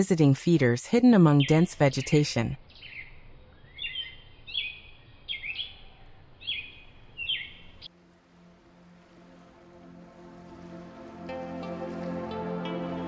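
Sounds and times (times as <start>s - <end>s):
small songbird singing: 1.2s - 7.9s.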